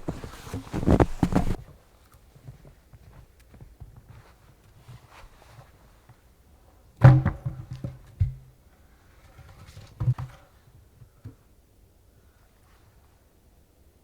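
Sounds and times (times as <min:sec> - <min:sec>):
dull thumps and knocks: 0:00.0 - 0:01.6.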